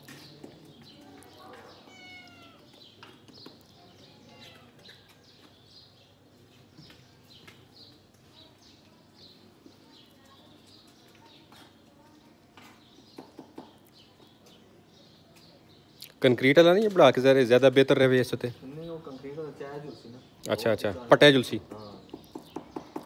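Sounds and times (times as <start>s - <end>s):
small bird chirps: 0.0s - 16.3s.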